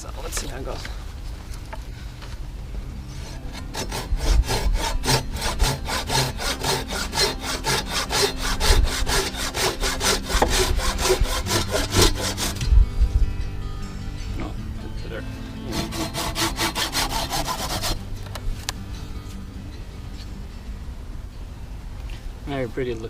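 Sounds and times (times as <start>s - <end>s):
pruning saw cutting wood: 3.1s - 12.6s, 15.6s - 18.1s.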